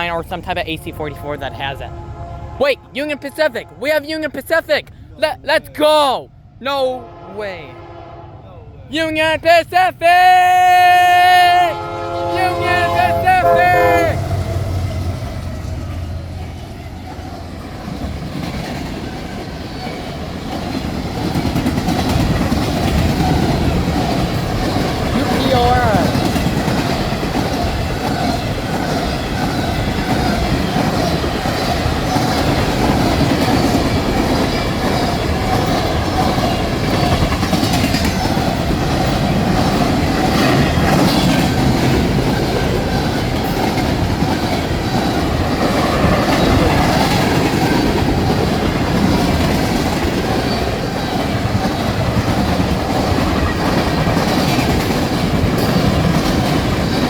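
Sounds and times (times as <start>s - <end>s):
freight train rolling past: 0.0s - 57.0s
wheels clacking over rail joints: 14.2s - 57.0s.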